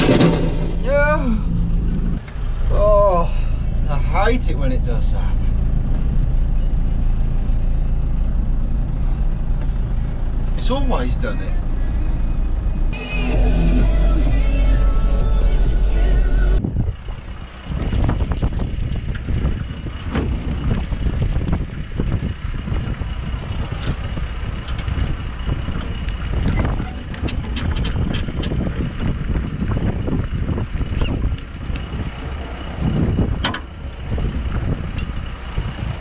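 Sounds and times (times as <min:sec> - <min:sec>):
knocks and rattles: 0:00.0 - 0:00.8, 0:23.7 - 0:33.8
tractor engine rumble: 0:00.0 - 0:36.0.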